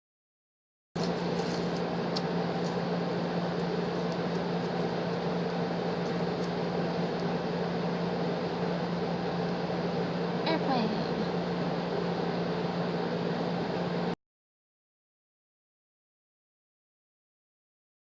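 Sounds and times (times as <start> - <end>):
mechanical hum with hiss: 1.0 - 14.2.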